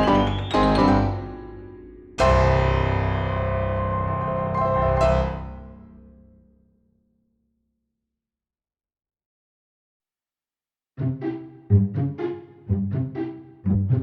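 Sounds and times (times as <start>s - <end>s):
piano chord ringing: 0.0s - 6.1s.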